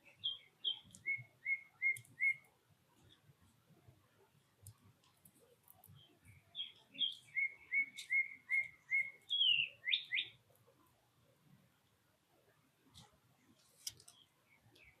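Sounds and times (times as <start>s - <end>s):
songbird whistling: 0.1s - 2.4s, 6.6s - 10.4s.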